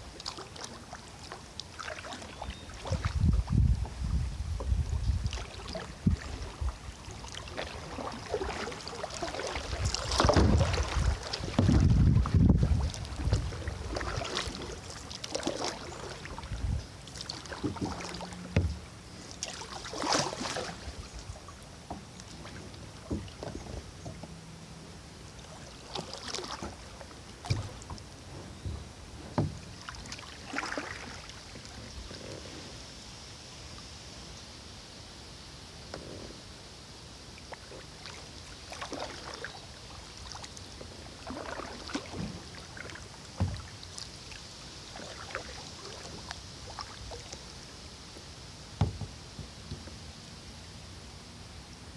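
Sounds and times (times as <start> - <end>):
paddle splashing water: 0.0 - 34.4, 35.1 - 51.1
low rumble on microphone: 2.8 - 7.1, 9.6 - 14.9, 16.2 - 19.3.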